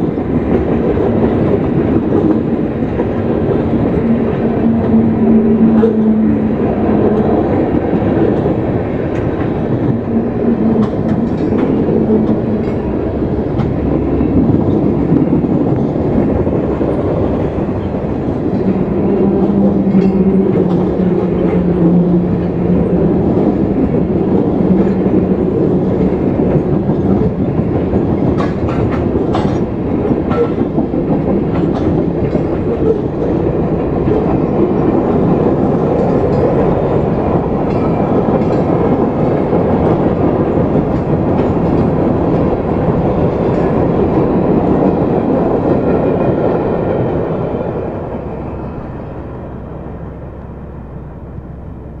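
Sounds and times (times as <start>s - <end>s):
train wheels rumbling on rails: 0.0s - 52.0s
clicks over rail joints: 26.5s - 33.4s.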